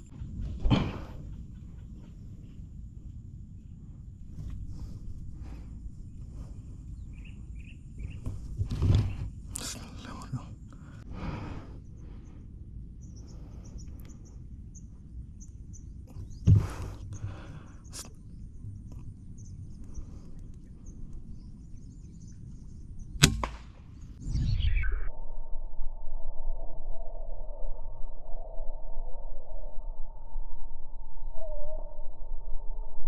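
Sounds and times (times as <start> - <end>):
faint high bird chirps: 6.9 - 8.3, 13.0 - 23.2, 24.2 - 25.2, 29.5 - 33.0.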